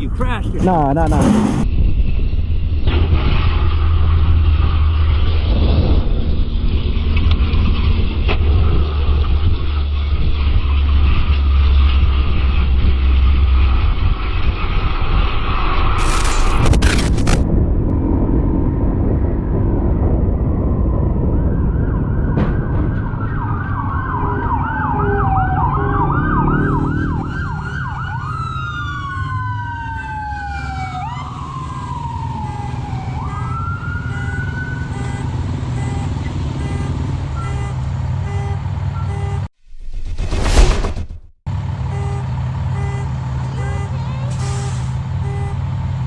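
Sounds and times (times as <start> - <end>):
emergency vehicle siren: 20.8 - 37.6.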